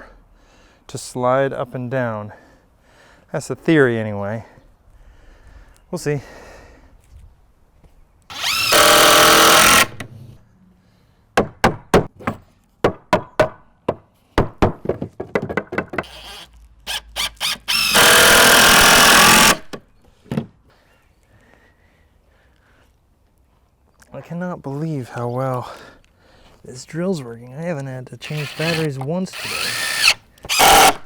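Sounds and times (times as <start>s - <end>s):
cordless drill driving screws into wood: 8.3s - 10.2s, 15.9s - 19.8s, 28.2s - 31.0s
sharp knocks and clicks: 11.4s - 16.1s.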